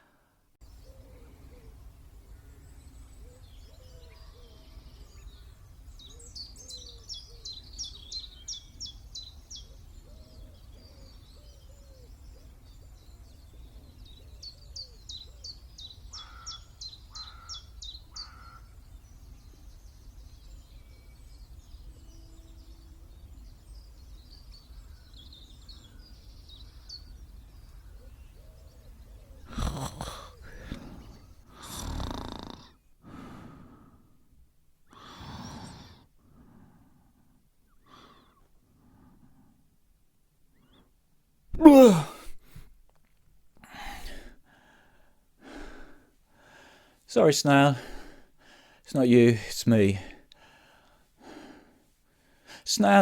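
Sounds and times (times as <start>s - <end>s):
wild birds singing trills: 0.0s - 42.2s, 43.7s - 53.0s.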